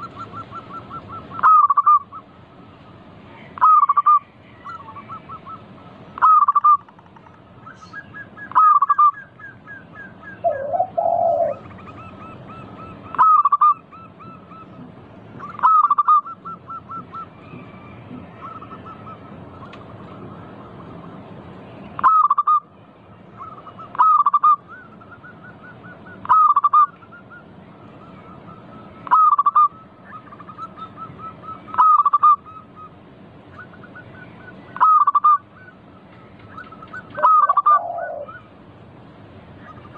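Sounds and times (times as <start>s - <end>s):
doves cooing: 0.0s - 21.3s, 23.4s - 39.9s.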